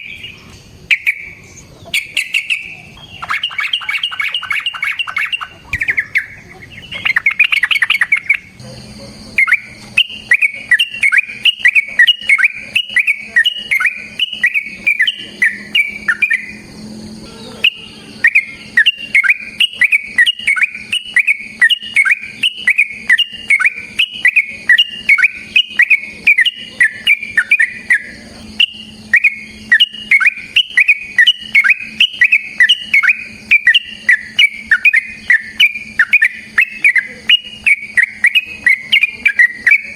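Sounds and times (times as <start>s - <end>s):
bird singing bubbly notes: 0.0s - 39.9s
faint steady high whine: 0.0s - 39.9s.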